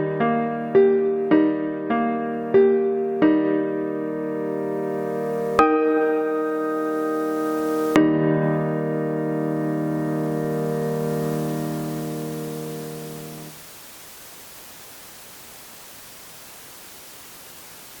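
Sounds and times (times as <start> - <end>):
digital piano held chord: 0.0 - 13.6
steady cable hiss: 3.1 - 18.0.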